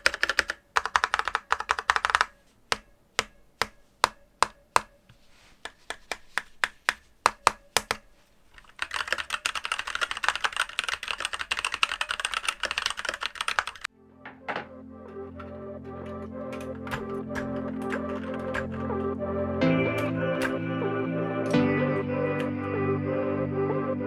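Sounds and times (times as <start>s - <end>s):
mechanical keyboard typing: 0.0s - 5.0s, 5.6s - 13.9s, 15.1s - 22.9s
music: 13.9s - 24.0s.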